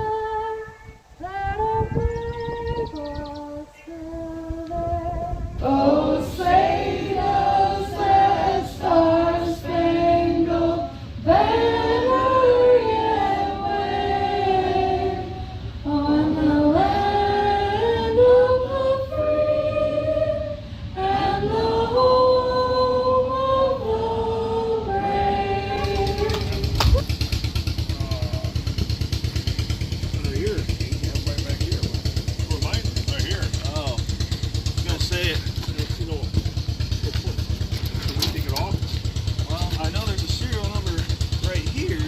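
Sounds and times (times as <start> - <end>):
women singing together: 0.0 - 26.8
steady low hum: 0.0 - 42.0.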